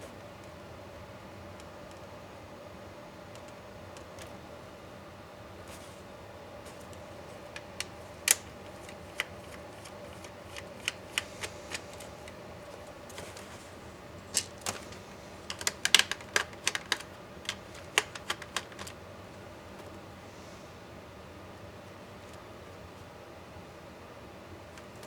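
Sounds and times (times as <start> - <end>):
faint steady hum: 0.0 - 25.0
clicks and taps of laptop parts: 15.5 - 18.9.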